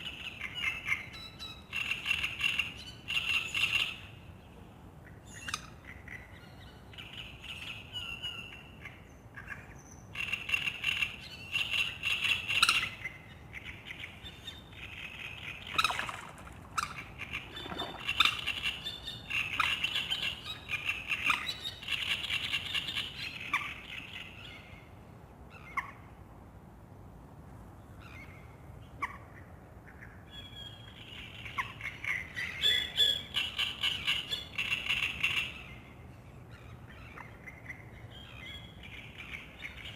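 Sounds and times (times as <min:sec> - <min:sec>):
songbirds chirping: 0:00.0 - 0:25.8
duck taking off from water: 0:15.8 - 0:18.7.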